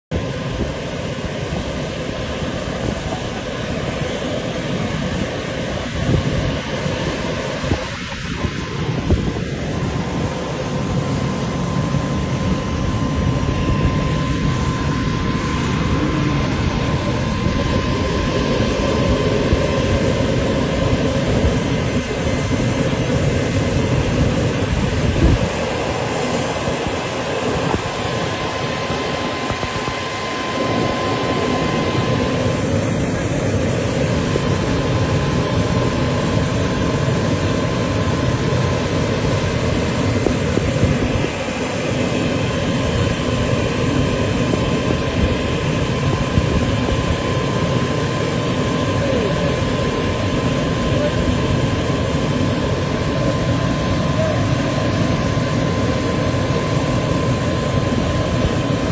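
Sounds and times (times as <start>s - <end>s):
jet engines rushing: 0.1s - 58.9s.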